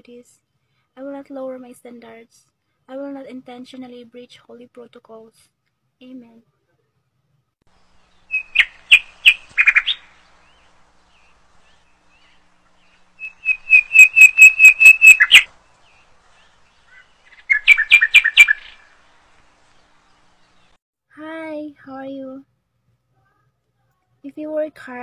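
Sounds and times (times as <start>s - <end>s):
bird singing high chirps: 7.8s - 20.8s.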